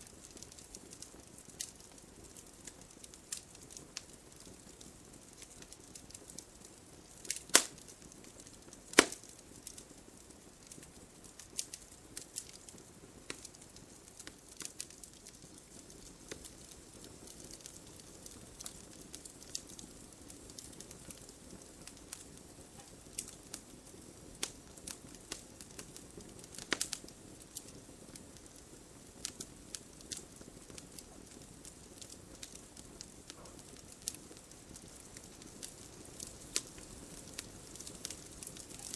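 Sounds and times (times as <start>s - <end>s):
campfire crackling: 0.0s - 38.9s
faint steady hiss: 0.0s - 38.9s
loud pops of burning wood: 0.0s - 38.9s.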